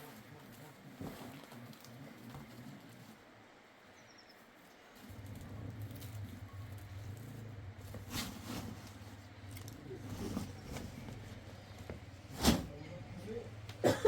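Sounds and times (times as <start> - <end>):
low steady hum: 0.0 - 14.0
faint knocks and rustles: 4.5 - 13.8.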